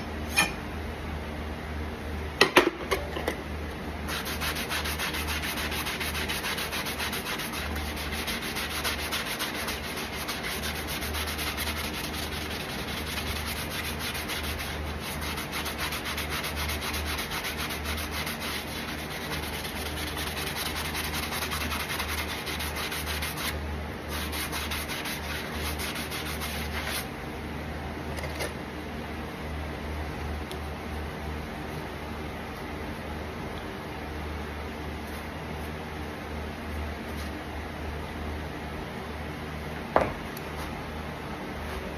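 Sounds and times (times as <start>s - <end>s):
rasp rubbing on horse hoof: 4.1s - 27.1s.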